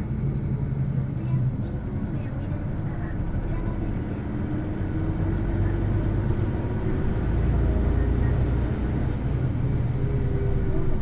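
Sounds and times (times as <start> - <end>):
bus interior engine rumble: 0.0 - 11.0.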